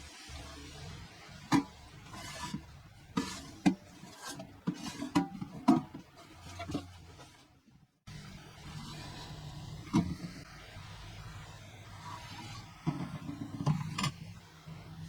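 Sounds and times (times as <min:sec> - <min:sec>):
light scraping of cans: 0:01.4 - 0:07.6, 0:12.0 - 0:15.0
tin cans clinking: 0:03.2 - 0:06.9.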